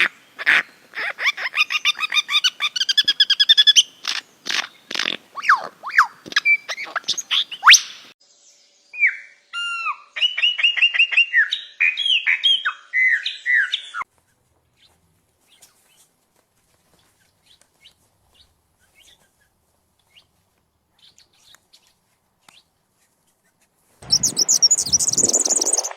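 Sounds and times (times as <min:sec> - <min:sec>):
songbird whistled notes: 0:05.4 - 0:14.0, 0:24.1 - 0:25.9
songbird quick chirps: 0:17.0 - 0:25.9.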